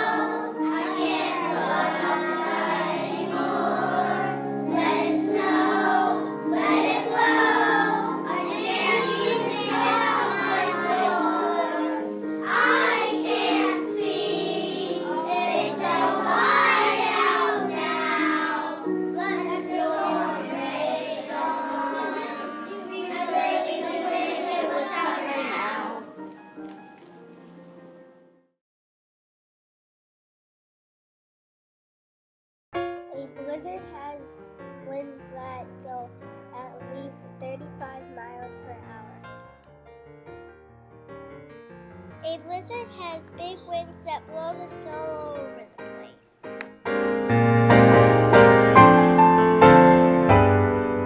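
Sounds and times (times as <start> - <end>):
children singing: 0.0 - 26.2
musical accompaniment: 0.0 - 28.4, 40.4 - 51.0.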